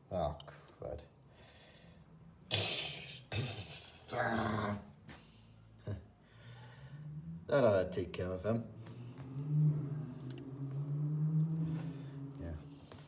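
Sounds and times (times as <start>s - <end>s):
person grunting with effort: 2.5s - 4.8s.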